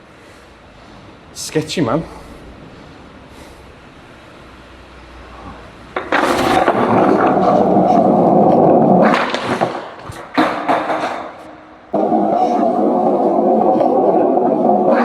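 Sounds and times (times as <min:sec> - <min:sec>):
skateboard wheels rolling on pavement: 0:02.5 - 0:15.0
skateboard landing hit: 0:06.0 - 0:11.4
skateboard tail clack: 0:06.0 - 0:15.0.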